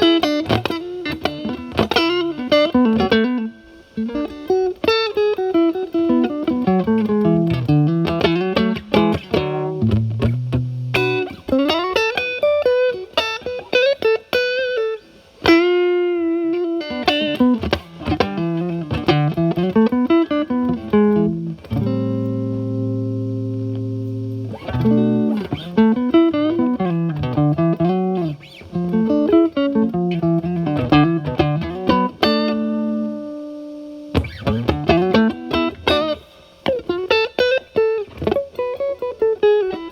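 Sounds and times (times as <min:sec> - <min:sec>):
electric guitar chords ringing: 0:00.0 - 0:39.9
overdriven electric guitar licks: 0:00.0 - 0:39.9.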